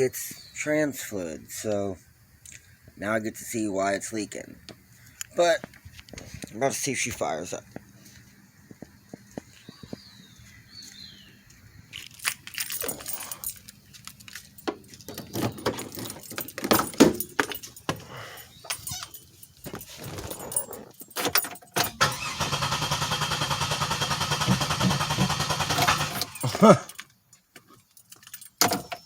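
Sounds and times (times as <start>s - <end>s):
keys being handled: 11.9s - 22.0s, 27.7s - 29.0s
engine starter cranking: 20.3s - 26.7s
clicks and clunks: 24.4s - 29.0s.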